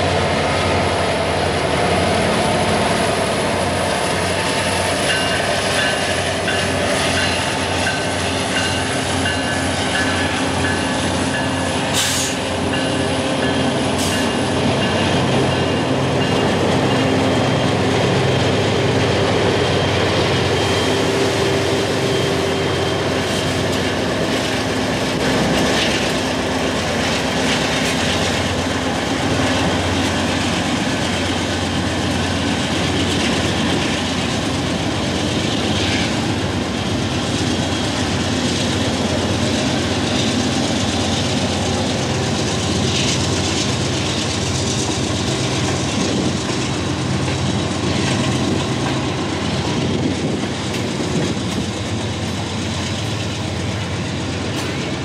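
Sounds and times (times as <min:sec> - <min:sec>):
freight train wheels rumbling: 0:00.0 - 0:55.0
wheel clacks on rail: 0:04.1 - 0:17.3, 0:37.8 - 0:55.0.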